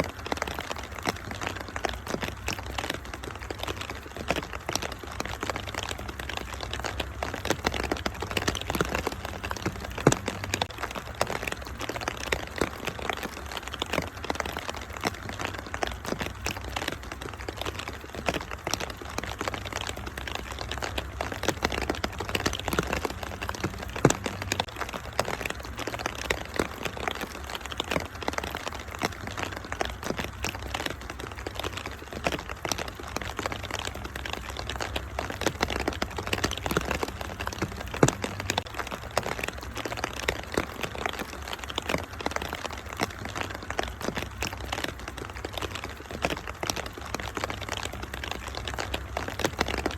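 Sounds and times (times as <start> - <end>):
rain-like hiss: 0.0 - 49.9
wood fire crackling: 0.0 - 49.9.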